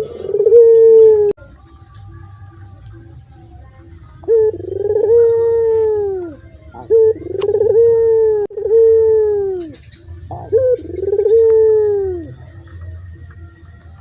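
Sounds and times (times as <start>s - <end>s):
dove cooing: 0.0s - 1.4s, 4.2s - 13.3s.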